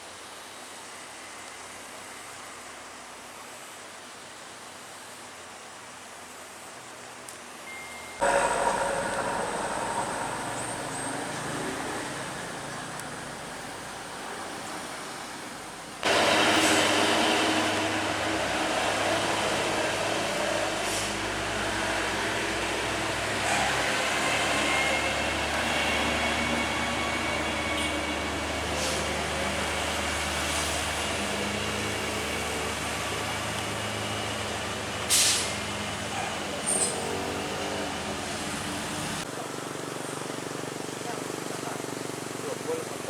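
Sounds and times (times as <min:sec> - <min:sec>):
truck engine running: 0:08.2 - 0:35.0
road noise: 0:08.2 - 0:39.3.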